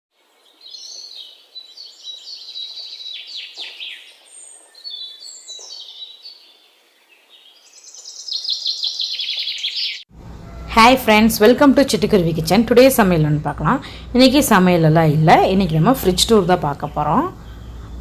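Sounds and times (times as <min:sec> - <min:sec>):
small songbirds chirping: 0:00.2 - 0:10.1.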